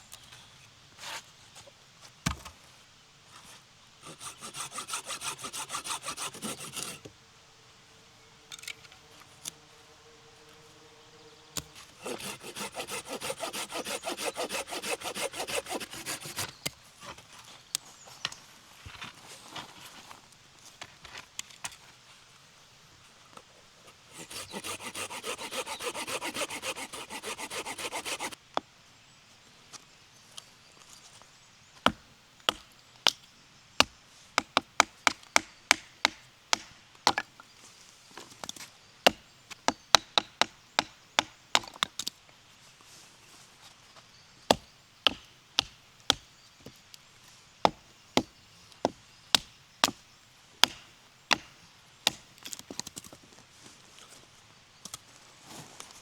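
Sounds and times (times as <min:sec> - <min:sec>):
hand saw rasping through wood: 0:04.0 - 0:07.0, 0:11.8 - 0:16.6, 0:24.1 - 0:28.4, 0:50.6 - 0:52.2.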